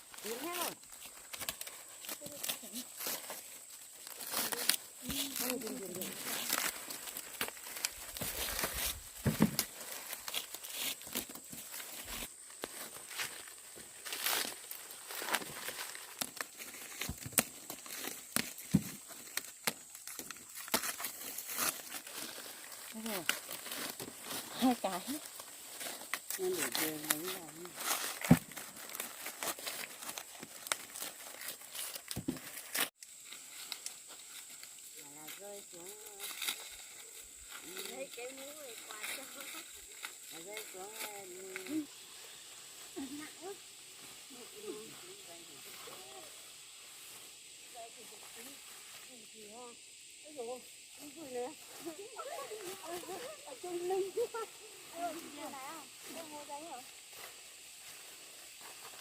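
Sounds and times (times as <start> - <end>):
dry corn leaves rustling: 0.0 - 49.8, 50.4 - 59.0
corn ears snapping off stalks: 14.1 - 22.0
sharp snaps and tearing: 14.1 - 24.2, 25.3 - 34.7.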